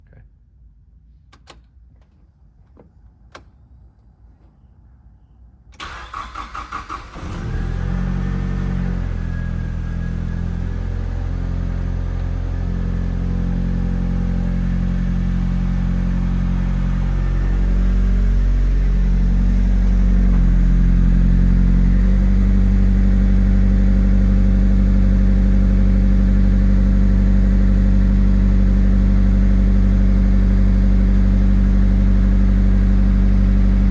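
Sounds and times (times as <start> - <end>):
starter motor cranking: 5.8 - 7.5
car engine idling: 5.8 - 33.9.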